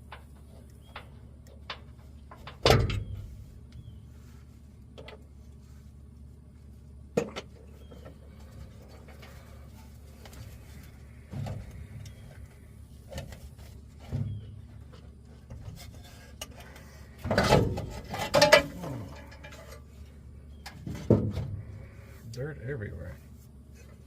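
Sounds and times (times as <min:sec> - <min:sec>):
rattling scraping clatter: 0:07.4 - 0:22.2.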